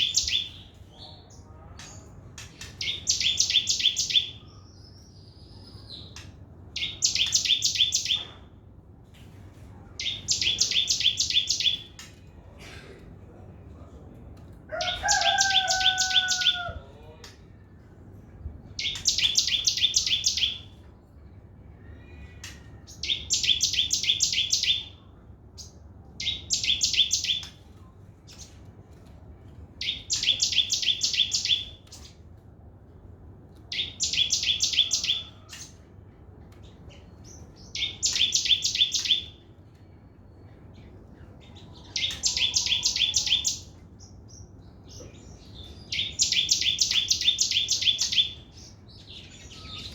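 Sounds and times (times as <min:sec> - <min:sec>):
sunbird trilling: 0:41.8 - 0:43.8.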